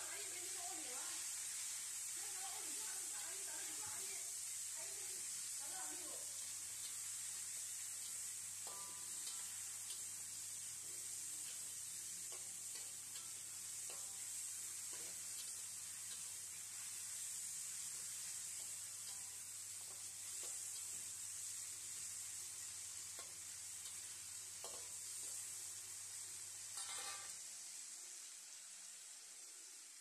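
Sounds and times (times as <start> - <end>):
tomatoes sizzling in hot oil: 0.0 - 30.0
metal spatula scraping a wok: 8.6 - 9.7, 18.6 - 20.9, 26.8 - 27.4.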